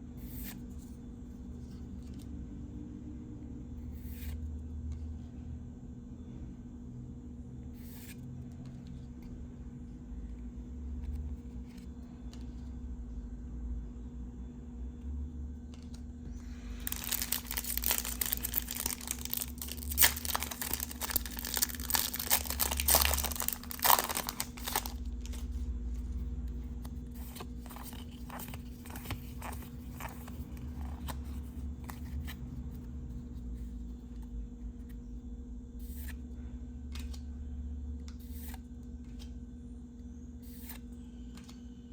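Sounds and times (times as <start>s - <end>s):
foil wrapper tearing and crinkling: 16.8s - 25.5s.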